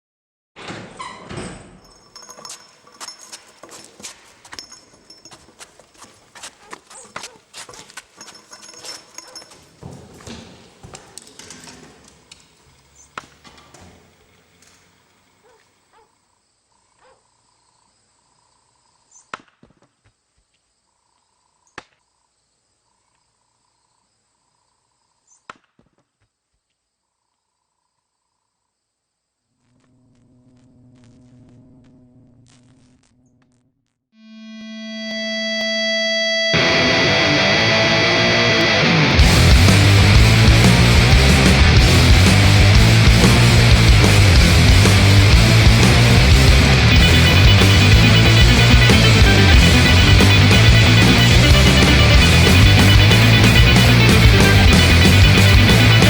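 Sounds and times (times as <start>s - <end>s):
faint broken high tone: 34.2s - 40.1s, 44.2s - 56.0s.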